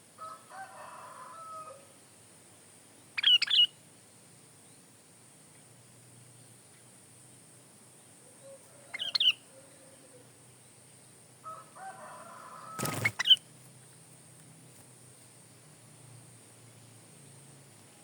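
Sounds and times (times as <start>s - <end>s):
bulbul chirping calls: 3.2s - 3.8s, 8.9s - 9.5s, 12.8s - 13.4s.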